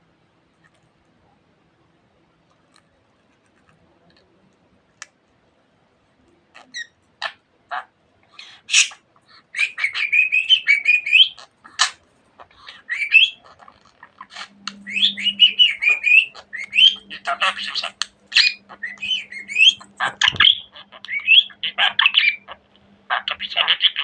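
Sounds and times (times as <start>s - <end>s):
budgerigar chirping and warbling: 6.6s - 24.0s.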